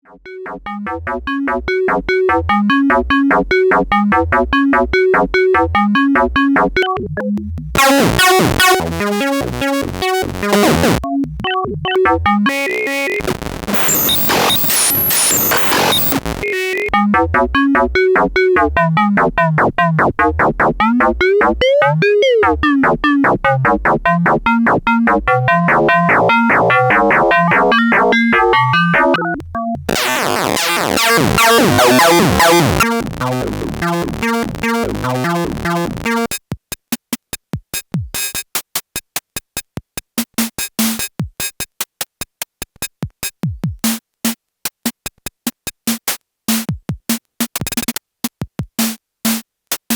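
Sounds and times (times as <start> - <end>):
synthesizer sequenced notes: 0.0 - 36.3
drum-synth clicks and hits: 7.8 - 9.2, 13.2 - 16.4, 22.8 - 36.5, 45.5 - 49.9.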